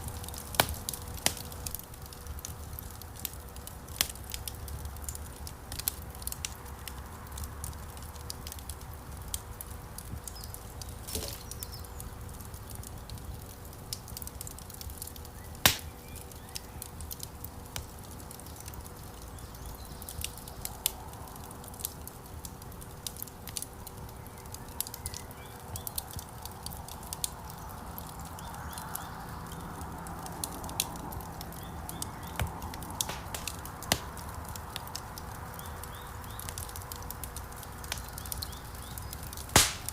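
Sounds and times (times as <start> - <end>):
low rumble of flames: 0.0 - 39.9
wood fire crackling: 0.0 - 39.9
loud fire pop: 15.7 - 15.9, 32.4 - 34.2, 39.5 - 39.9.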